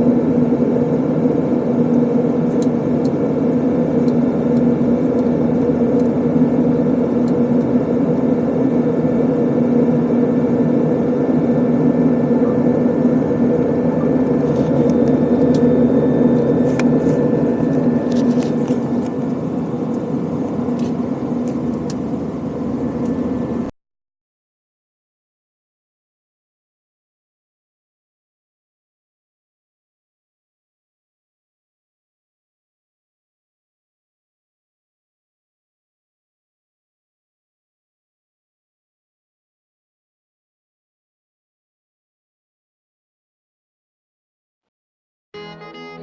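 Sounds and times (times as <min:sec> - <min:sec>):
airplane cabin engine drone: 0:00.0 - 0:23.8.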